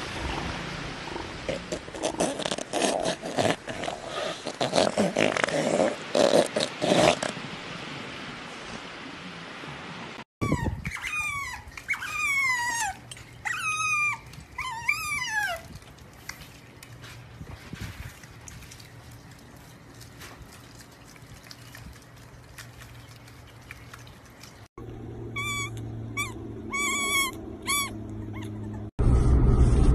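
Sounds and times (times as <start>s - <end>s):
otter squeaky chirps: 10.4s - 15.6s, 25.3s - 28.9s.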